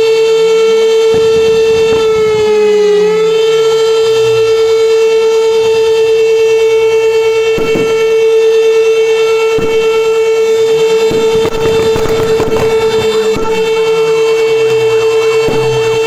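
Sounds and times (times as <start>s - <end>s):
siren at steady pitch: 0.0s - 16.0s
knocks and clatter: 11.1s - 13.9s.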